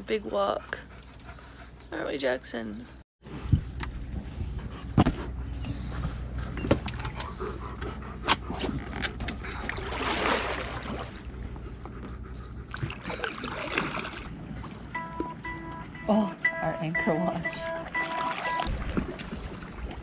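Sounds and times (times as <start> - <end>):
paddle swishing water: 17.8 - 20.0.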